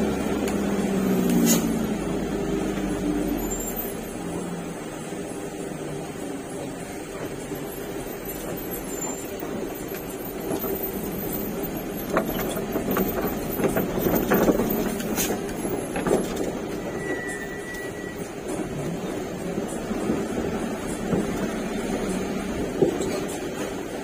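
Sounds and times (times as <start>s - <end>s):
truck engine hum: 0.0s - 24.0s
high squeal: 3.1s - 4.5s, 16.6s - 18.8s
knocks and rattles: 9.8s - 16.9s.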